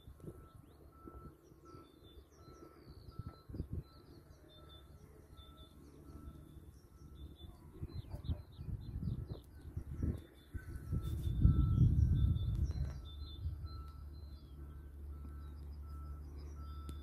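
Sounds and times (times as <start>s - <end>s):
small birds chirping: 0.0s - 17.0s
wind rumble on microphone: 2.8s - 4.1s, 7.6s - 14.1s.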